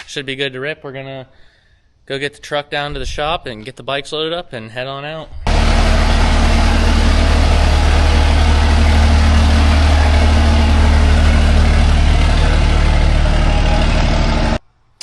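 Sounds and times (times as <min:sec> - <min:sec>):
truck engine humming steadily: 0:05.5 - 0:14.6.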